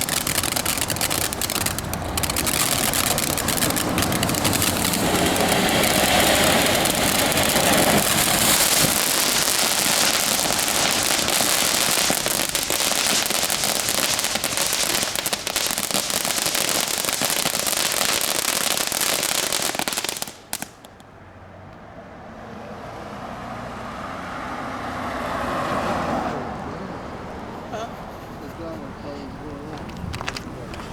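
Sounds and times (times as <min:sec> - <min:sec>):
firework fountain hissing and crackling: 0:00.0 - 0:21.0
firework pops: 0:00.0 - 0:21.1, 0:29.7 - 0:30.9.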